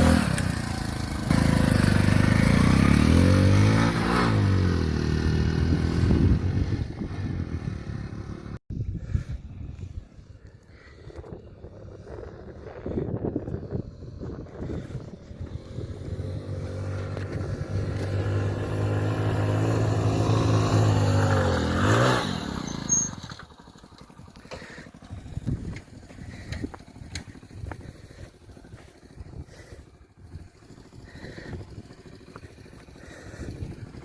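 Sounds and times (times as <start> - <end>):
motorcycle engine under load: 0.0 - 8.6, 13.4 - 34.0
engine clicks: 23.3 - 27.8.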